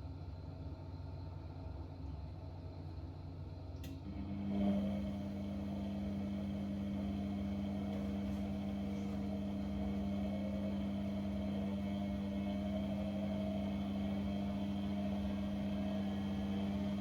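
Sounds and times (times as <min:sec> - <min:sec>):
click: 0:03.8 - 0:04.0
electric motor humming: 0:04.5 - 0:17.0.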